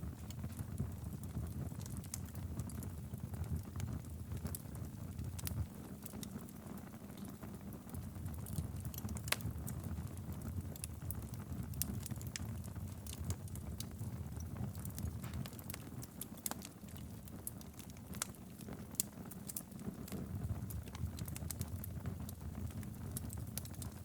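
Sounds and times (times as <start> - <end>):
fire flames rumbling: 0.0 - 24.0
wood fire crackling and popping: 0.0 - 24.0.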